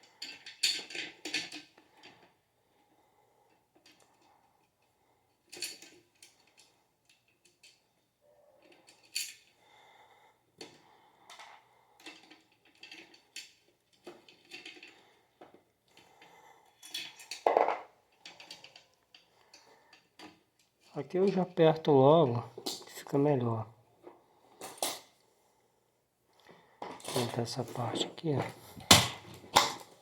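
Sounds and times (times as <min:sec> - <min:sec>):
metal parts clinking and rattling: 0:00.1 - 0:02.3, 0:05.4 - 0:08.0, 0:08.6 - 0:09.6, 0:11.3 - 0:15.0, 0:16.6 - 0:19.3, 0:26.8 - 0:30.0.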